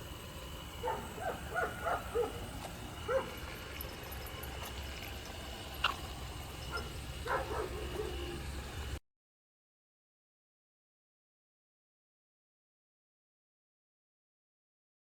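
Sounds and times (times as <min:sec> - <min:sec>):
steady low hum: 0:00.0 - 0:09.0
dog yipping and whimpering: 0:03.1 - 0:03.4.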